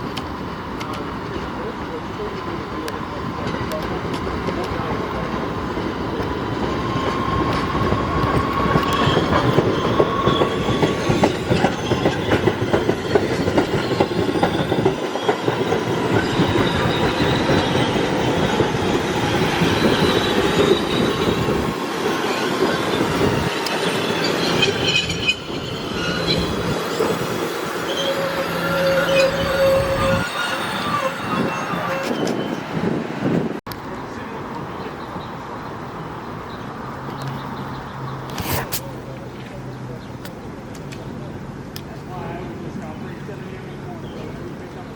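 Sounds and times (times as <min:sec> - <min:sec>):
train wheels clattering on rails: 0:02.3 - 0:32.7
wheel squeal: 0:06.9 - 0:33.0.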